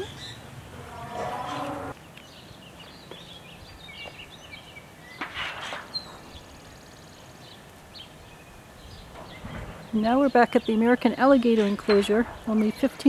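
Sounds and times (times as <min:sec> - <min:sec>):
small birds chirping: 0:00.0 - 0:00.5, 0:01.4 - 0:13.0
rough bird call: 0:00.0 - 0:02.0.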